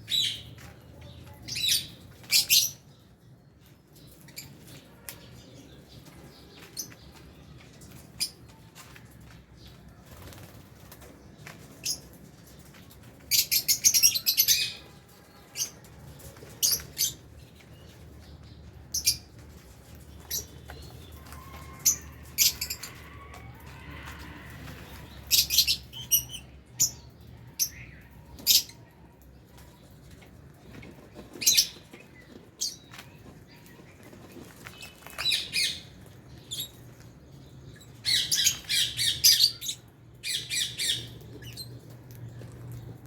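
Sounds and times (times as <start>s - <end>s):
wings flapping: 10.0s - 11.2s
lovebirds chirping: 11.4s - 43.0s.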